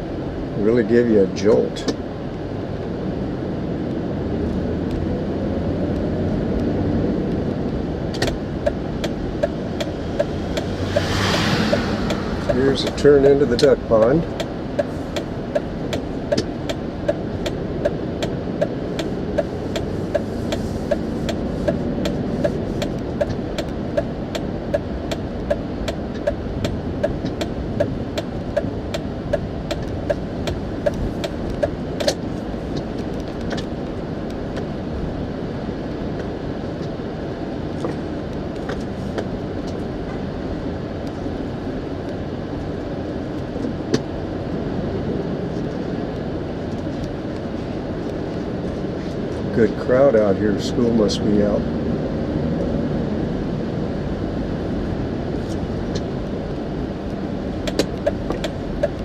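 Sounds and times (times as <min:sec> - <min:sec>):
road noise inside car: 0:00.0 - 0:59.0
turn signal ticking: 0:05.9 - 0:34.8, 0:54.5 - 0:59.0.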